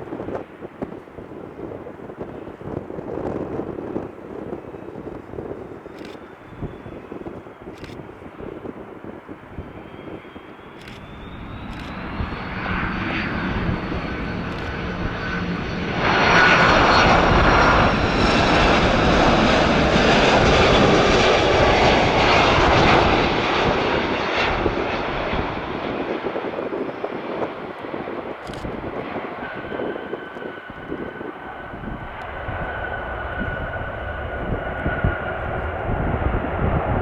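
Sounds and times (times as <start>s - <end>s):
jet engines roaring: 0.0s - 37.0s.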